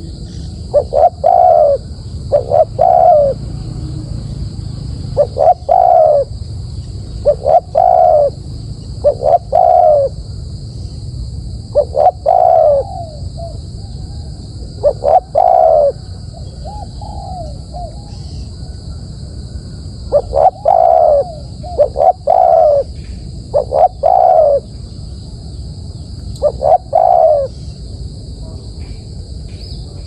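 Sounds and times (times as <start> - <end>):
dove cooing: 0.0 - 3.8, 4.7 - 6.4, 7.1 - 10.3, 11.7 - 24.8, 26.2 - 27.9.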